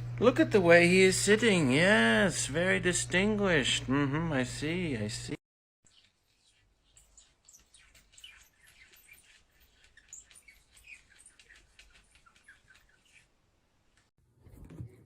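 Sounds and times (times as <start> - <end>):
small birds twittering: 5.9 - 13.4.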